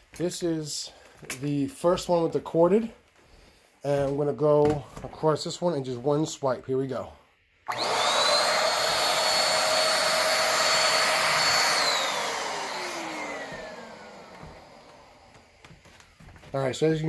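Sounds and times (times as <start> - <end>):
vacuum cleaner motor whine: 7.7 - 16.4.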